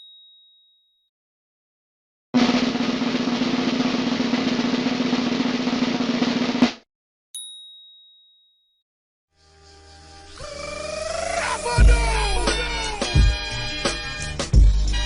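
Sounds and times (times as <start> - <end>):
snare drum roll: 2.4 - 6.8
high bell ding: 7.4 - 8.8.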